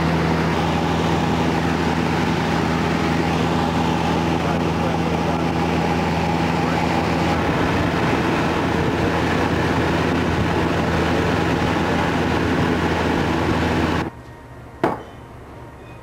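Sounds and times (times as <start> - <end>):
propeller airplane engine drone: 0.0 - 15.9.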